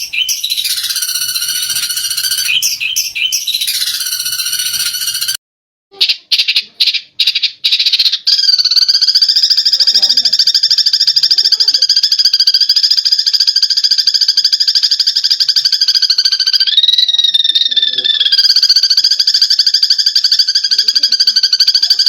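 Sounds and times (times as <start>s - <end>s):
sparrows chirping: 0.0s - 5.4s, 6.4s - 22.0s
sparrows rattling chatter: 0.0s - 5.4s, 6.4s - 22.0s.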